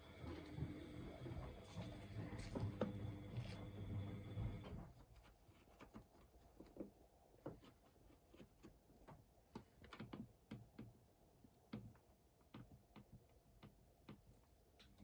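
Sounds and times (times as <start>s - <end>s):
washing machine humming: 0.0s - 5.0s
faint clicks and taps: 0.1s - 15.0s.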